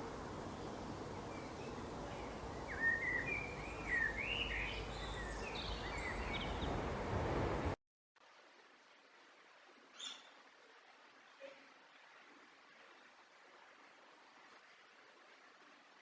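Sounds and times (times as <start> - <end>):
wild birds chirping and whistling: 1.3 - 6.7.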